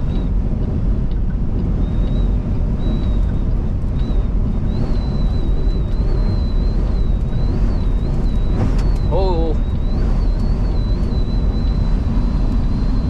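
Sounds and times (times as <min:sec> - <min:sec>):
truck engine and road rumble: 0:00.0 - 0:13.0
wind buffeting: 0:00.0 - 0:13.0
thin high whistle: 0:04.0 - 0:13.0.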